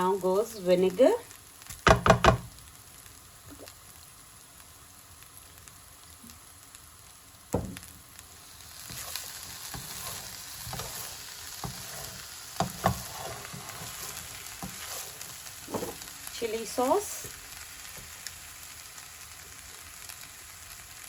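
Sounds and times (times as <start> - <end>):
fried rice sizzling in a pan: 0.0 - 21.0
spatula knocking and scraping pan: 1.8 - 2.5, 8.8 - 16.1.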